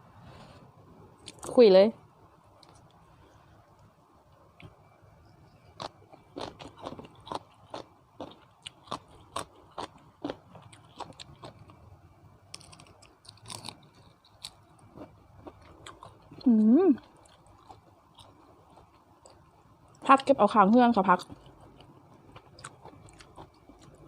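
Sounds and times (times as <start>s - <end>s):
person chewing crunchy food: 5.5s - 11.9s, 12.5s - 20.1s, 21.2s - 24.0s.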